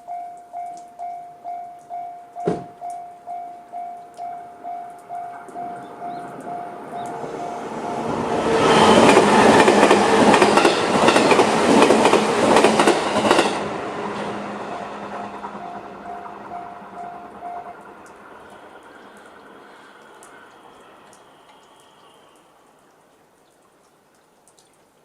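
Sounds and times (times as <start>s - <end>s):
crossing warning bell ringing: 0.0s - 9.9s, 14.8s - 18.7s
train wheels clacking on rail joints: 8.5s - 13.7s.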